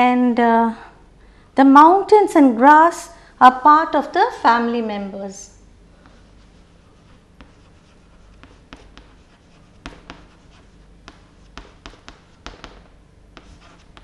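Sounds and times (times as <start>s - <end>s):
writing tool scratching on board: 6.0s - 14.0s
writing tool tapping board: 6.9s - 14.0s.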